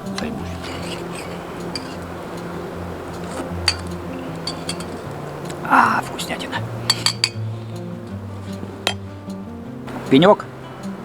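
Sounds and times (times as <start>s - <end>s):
metal spoon clinking on metal pot: 0.0s - 5.7s, 6.8s - 7.4s, 8.8s - 9.1s
background music with held notes: 0.0s - 11.0s.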